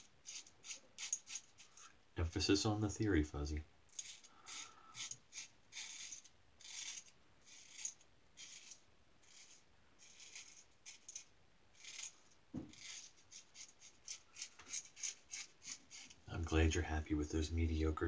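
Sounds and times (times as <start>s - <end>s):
razor scraping stubble: 0.0s - 1.8s, 3.9s - 16.2s.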